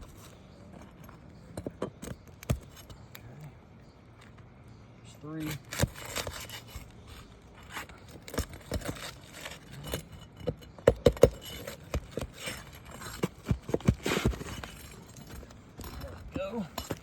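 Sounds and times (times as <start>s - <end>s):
hand tools scraping on roof: 5.5s - 17.0s.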